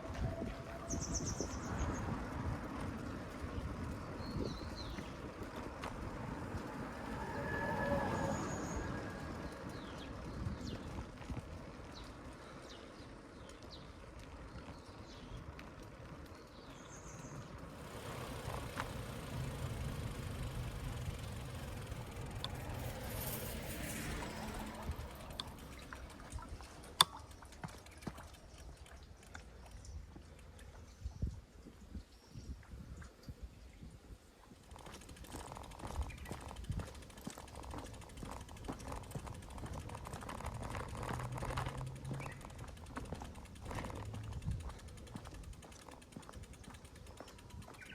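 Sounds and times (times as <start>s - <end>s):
bicycle parts rattling and clicking: 17.5s - 31.0s, 34.6s - 47.9s
steady low rumbling: 17.7s - 26.8s.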